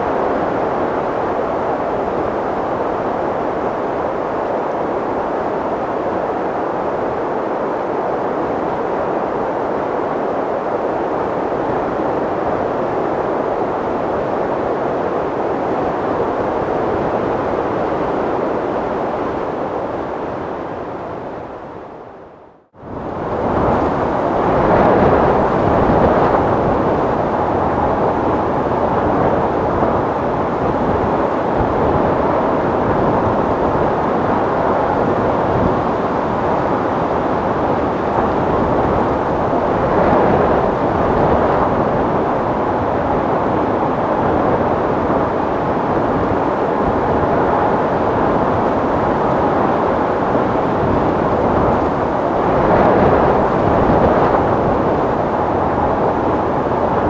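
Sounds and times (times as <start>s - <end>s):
strong steady wind: 0.0s - 57.0s.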